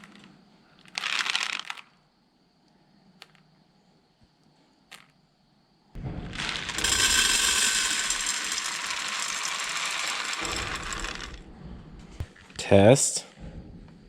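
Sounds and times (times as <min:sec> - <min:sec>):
dry beans rattling: 0:00.0 - 0:02.0, 0:06.1 - 0:11.5.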